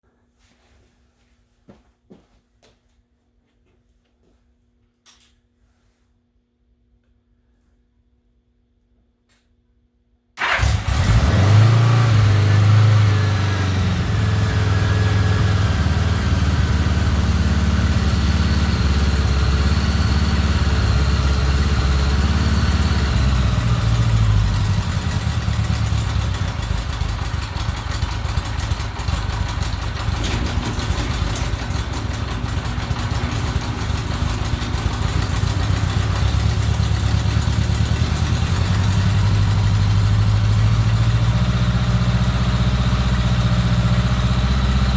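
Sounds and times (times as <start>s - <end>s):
motorcycle engine idling: 12.4s - 44.9s.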